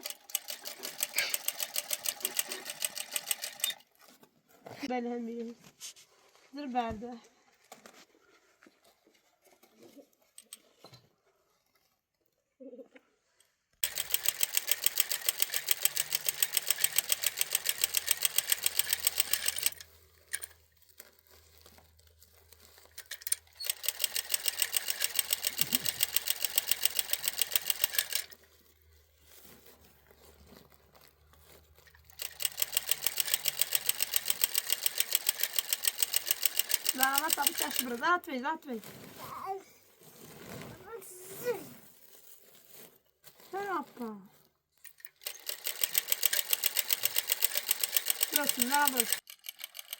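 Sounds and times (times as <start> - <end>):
small machine clattering: 0.0 - 4.0, 13.8 - 20.7, 22.6 - 28.5, 31.8 - 38.4, 44.9 - 49.9.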